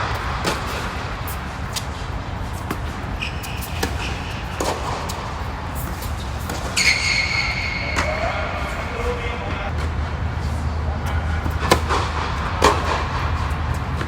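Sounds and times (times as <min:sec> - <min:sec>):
steady low rumble: 0:00.0 - 0:03.2, 0:08.2 - 0:14.0
tennis ball racket hits: 0:00.0 - 0:07.0, 0:11.0 - 0:14.0
high squeak: 0:03.2 - 0:04.6, 0:05.9 - 0:09.0.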